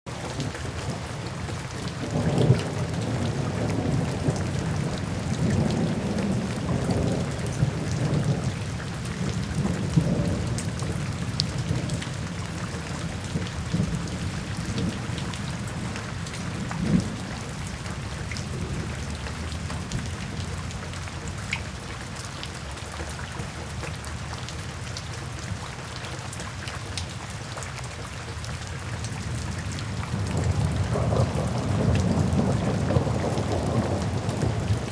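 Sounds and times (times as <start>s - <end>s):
steady rain falling: 0.1s - 34.9s
thunder rumbling low: 0.3s - 20.7s, 29.2s - 34.9s.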